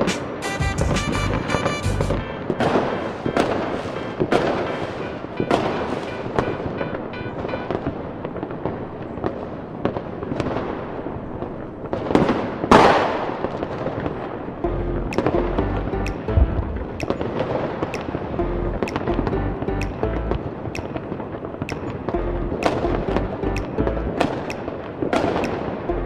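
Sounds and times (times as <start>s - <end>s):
fireworks crackling: 2.4s - 7.1s
fireworks exploding: 2.4s - 14.6s, 24.2s - 25.9s.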